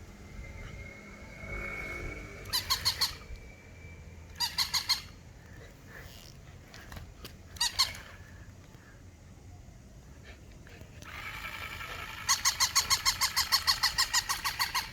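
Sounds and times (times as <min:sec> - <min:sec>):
squeaky toy squeaking: 0:02.5 - 0:03.2, 0:04.4 - 0:05.2, 0:07.6 - 0:08.1, 0:11.9 - 0:14.9.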